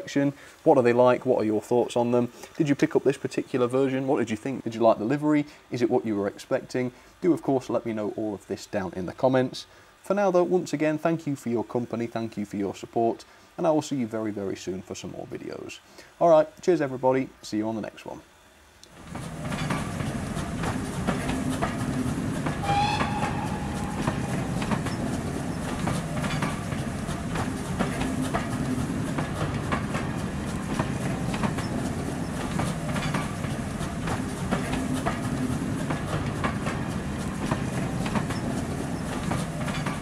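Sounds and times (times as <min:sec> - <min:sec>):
train rumble: 0:18.9 - 0:40.0
train wheels clicking over rail joints: 0:18.9 - 0:40.0
short whistle: 0:22.6 - 0:25.0.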